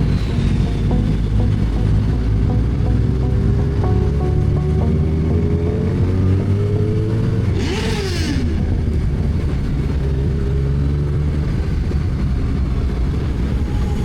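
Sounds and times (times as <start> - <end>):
note falling in pitch: 0.0 - 8.9.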